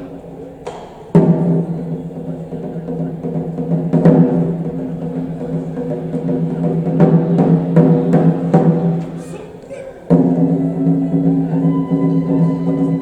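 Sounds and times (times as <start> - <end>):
loud drum strikes: 0.7 - 9.4, 10.0 - 13.0.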